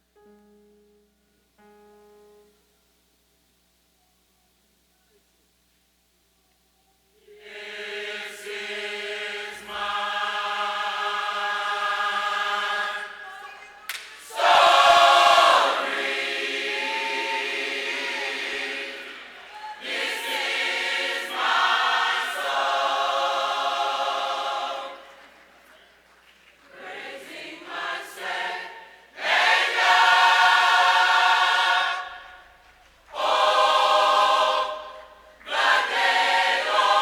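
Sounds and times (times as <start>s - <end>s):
choir singing sustained chords: 7.2s - 13.5s, 14.2s - 25.2s, 26.8s - 32.5s, 33.1s - 37.0s.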